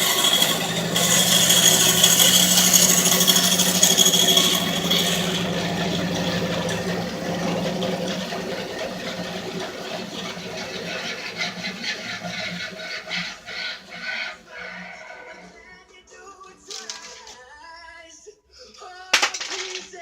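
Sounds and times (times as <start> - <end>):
bandsaw humming: 0.0 - 15.6
clicks and rattles: 16.7 - 17.5, 19.1 - 20.0.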